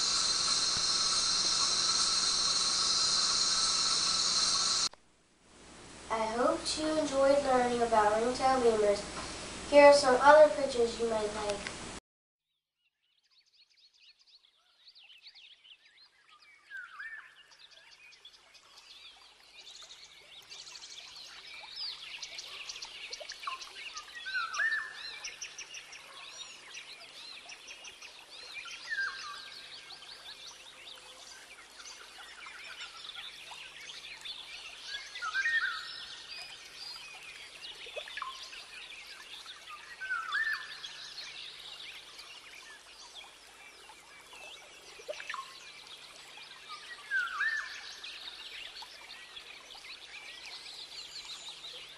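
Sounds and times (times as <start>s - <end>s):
many birds chirping: 0.0s - 4.9s.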